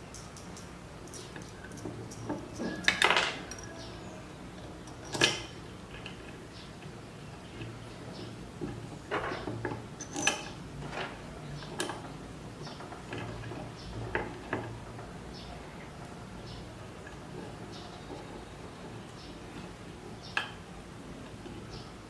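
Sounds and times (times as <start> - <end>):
metal tools clinking and knocking: 0.0 - 3.9, 4.9 - 5.6, 9.3 - 10.6.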